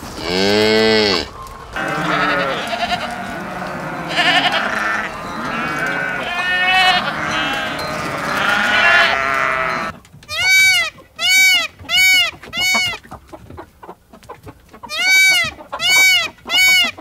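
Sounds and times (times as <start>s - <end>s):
goats bleating: 0.2s - 12.8s.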